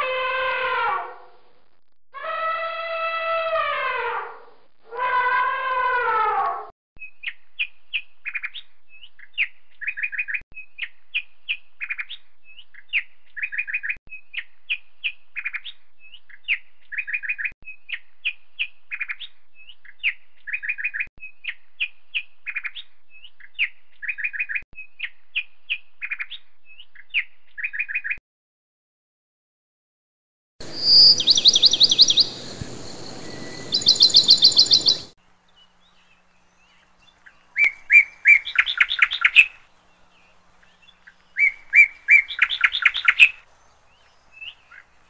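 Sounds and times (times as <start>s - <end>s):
small bird chirping: 30.6s - 45.0s.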